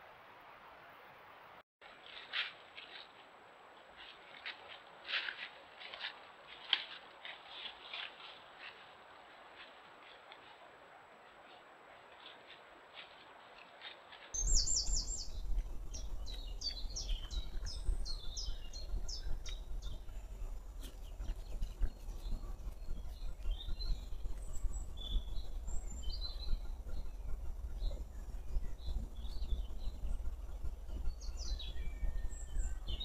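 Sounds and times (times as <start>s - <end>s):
small birds singing: 14.2s - 33.0s
steady low rumble: 14.4s - 33.0s.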